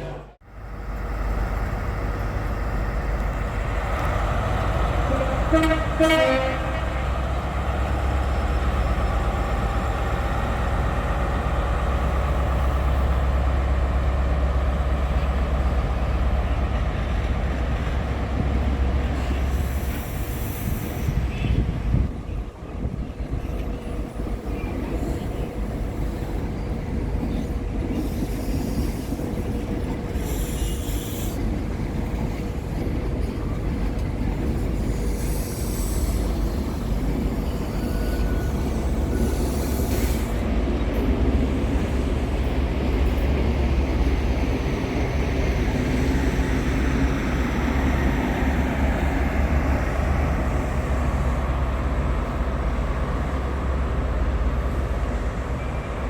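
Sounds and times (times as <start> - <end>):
train rumbling: 0.0 - 56.0
high-pitched hiss or squeal: 30.2 - 31.4, 37.4 - 40.4.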